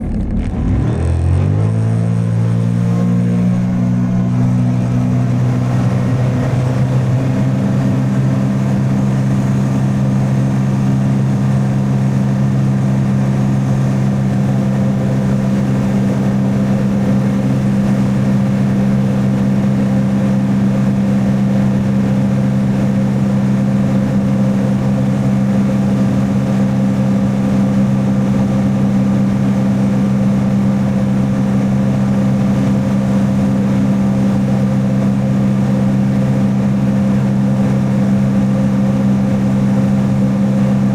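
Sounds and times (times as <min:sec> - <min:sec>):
jet ski engine running: 0:00.0 - 0:40.9.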